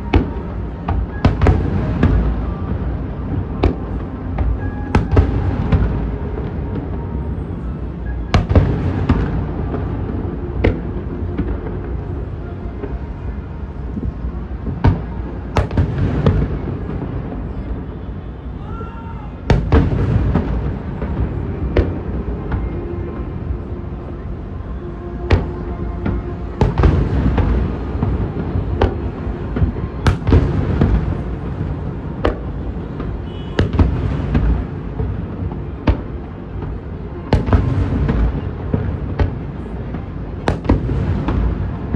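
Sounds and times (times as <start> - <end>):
fireworks bangs: 0.0 - 23.5, 25.2 - 41.9
low rumble of explosions: 0.0 - 41.9.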